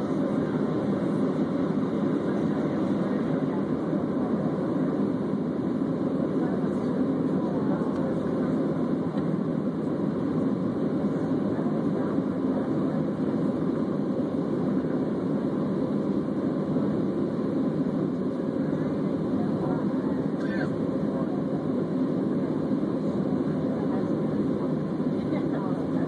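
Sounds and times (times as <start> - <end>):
jet engine roar in cabin: 0.0 - 26.0.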